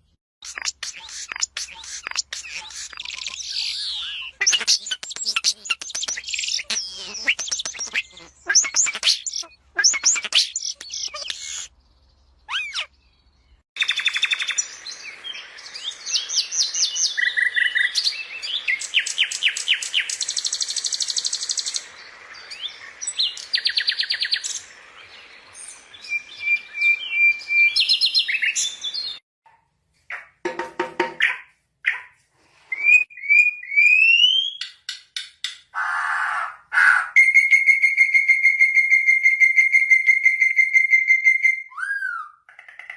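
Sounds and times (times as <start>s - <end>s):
songbirds singing and calling: 0.0s - 29.2s.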